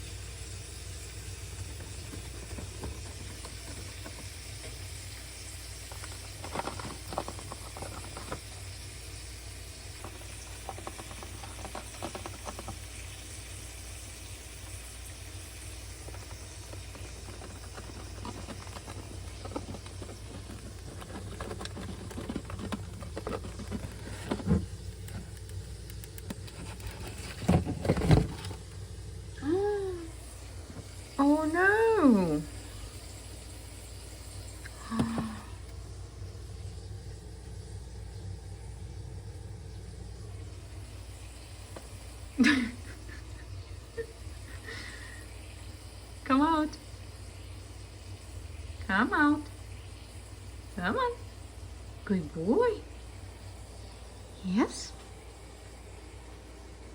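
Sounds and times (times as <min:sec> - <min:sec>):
steady low hum: 0:00.0 - 0:56.9
bird claws and beak scratching: 0:01.7 - 0:04.8, 0:05.8 - 0:08.8, 0:10.0 - 0:13.1, 0:16.0 - 0:28.6.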